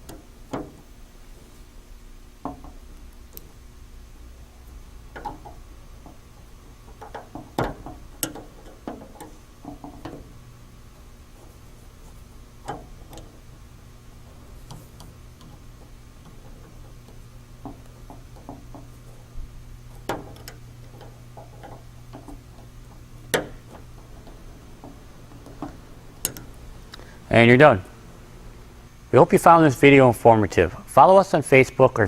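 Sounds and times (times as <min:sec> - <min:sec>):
steady low hum: 0:00.0 - 0:32.0
tools clicking and tapping: 0:06.9 - 0:10.3.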